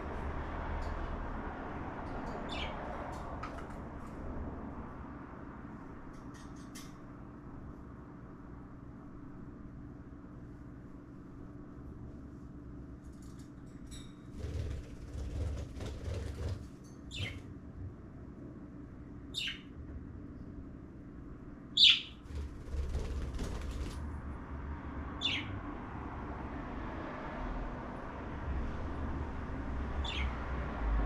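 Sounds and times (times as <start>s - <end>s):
wings flapping and rustling: 14.3s - 17.4s, 22.2s - 24.2s
cockatiel chirps: 21.8s - 22.2s.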